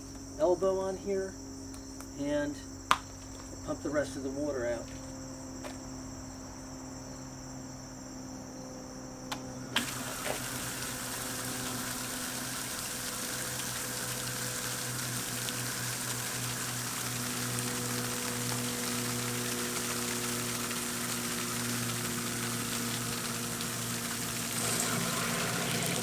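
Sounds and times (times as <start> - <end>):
electric pump humming: 0.0 - 26.0
water splashing from discharge: 9.8 - 26.0.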